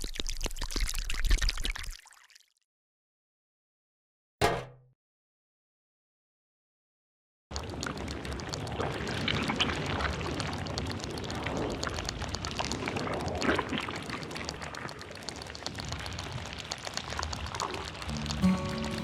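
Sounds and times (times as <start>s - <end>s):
water pouring and splashing: 0.0s - 2.6s, 7.5s - 19.0s.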